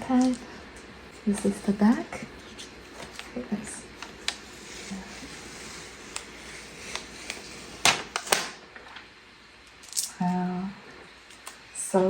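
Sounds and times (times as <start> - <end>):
plastic wrapping rustling: 1.1 - 9.0.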